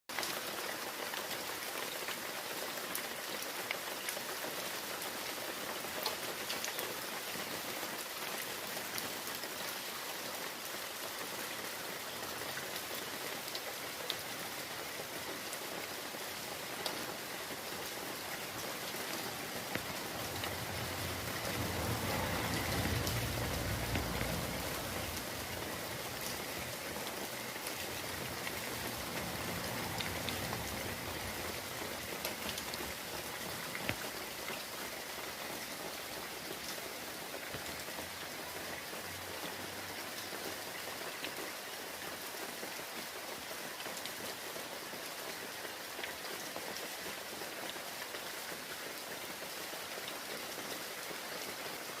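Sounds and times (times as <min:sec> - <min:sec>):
rain falling: 0:00.1 - 0:52.0
low rumble: 0:19.7 - 0:26.9.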